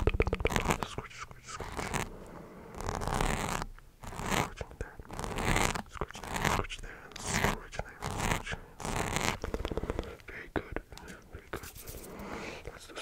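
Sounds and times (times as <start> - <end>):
mouth clicks: 0.0 - 2.0
breathy mouth sounds: 0.0 - 3.2, 4.2 - 13.0.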